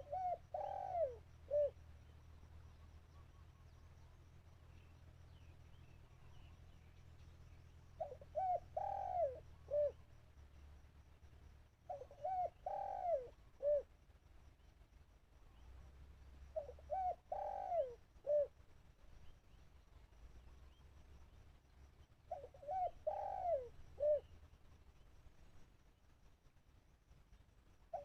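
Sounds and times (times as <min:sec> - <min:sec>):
dove cooing: 0:00.0 - 0:01.8, 0:08.0 - 0:10.0, 0:11.9 - 0:13.9, 0:16.5 - 0:18.5, 0:22.3 - 0:24.3.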